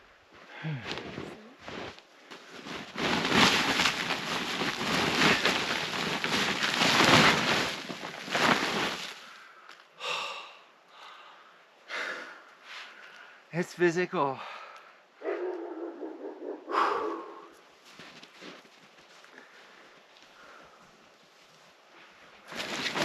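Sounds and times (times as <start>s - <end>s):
person breathing heavily: 0.1s - 1.2s, 9.2s - 13.5s, 16.6s - 17.5s
starter rope pulled: 1.7s - 9.3s, 22.5s - 23.0s.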